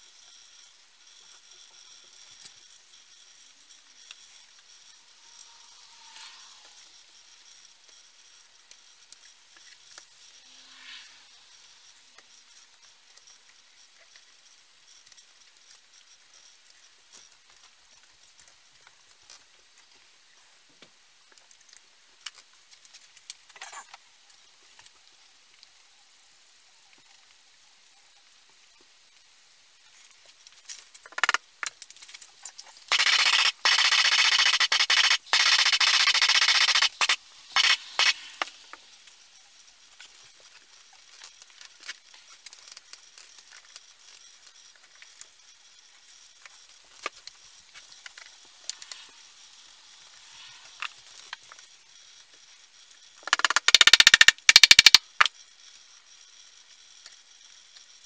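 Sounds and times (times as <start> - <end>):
spray hissing in bursts: 32.9 - 38.7.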